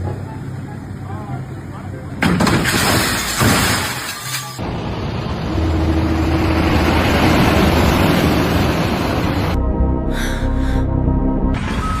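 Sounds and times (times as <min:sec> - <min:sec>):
steady rushing noise: 0:04.6 - 0:09.6.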